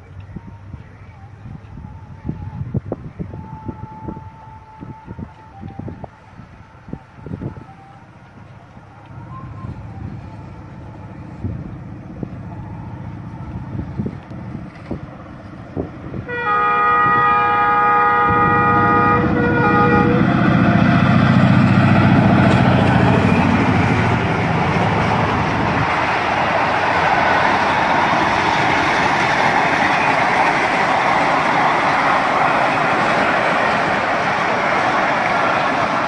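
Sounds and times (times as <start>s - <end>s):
locomotive engine rumble: 0.0s - 36.0s
train wheels rushing on rails: 1.6s - 36.0s
locomotive multi-tone horn: 3.3s - 11.6s, 16.1s - 34.8s.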